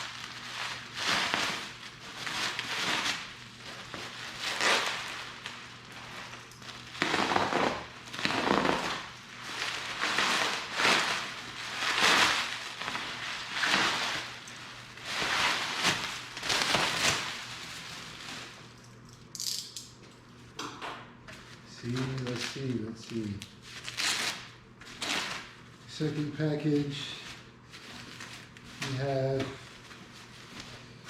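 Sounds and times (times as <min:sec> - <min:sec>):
packaging rustling and crinkling: 0:00.0 - 0:19.0, 0:21.3 - 0:31.0.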